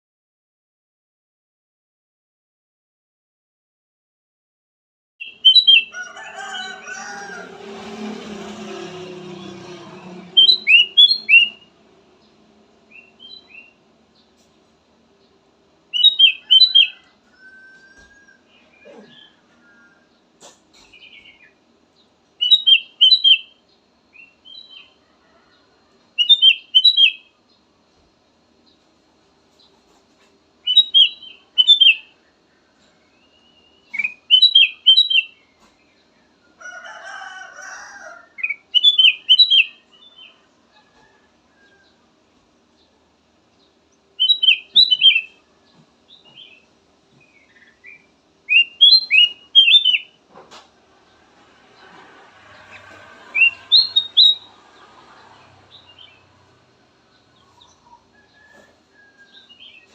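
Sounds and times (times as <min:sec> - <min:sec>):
bulbul chirping song: 0:05.2 - 0:06.0, 0:10.3 - 0:14.4, 0:15.3 - 0:17.0, 0:22.4 - 0:25.0, 0:26.2 - 0:27.4, 0:30.6 - 0:32.4, 0:33.1 - 0:35.6, 0:38.4 - 0:40.4, 0:43.7 - 0:45.4, 0:46.1 - 0:50.2, 0:53.4 - 0:54.6
bulbul singing whistled notes: 0:10.4 - 0:11.7, 0:47.5 - 0:50.1.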